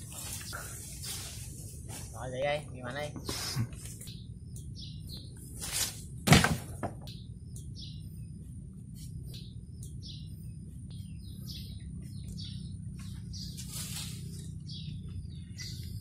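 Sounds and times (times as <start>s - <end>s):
small bird chirping: 0.1s - 5.7s, 7.0s - 16.0s
loud thump: 6.2s - 7.1s.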